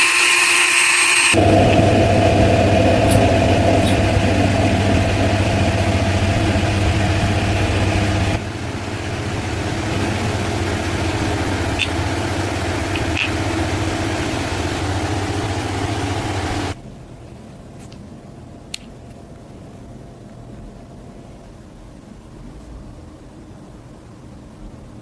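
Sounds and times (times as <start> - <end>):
workshop machine humming: 0.0 - 16.8.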